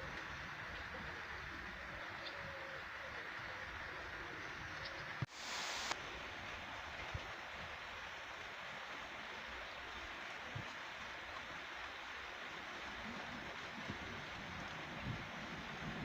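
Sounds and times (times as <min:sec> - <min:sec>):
rain hissing: 0:05.2 - 0:16.0.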